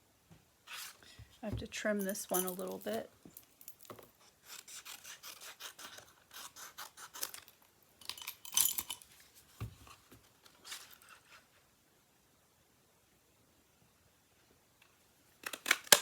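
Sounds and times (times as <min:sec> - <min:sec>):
scissors snipping paper: 0:04.5 - 0:07.5.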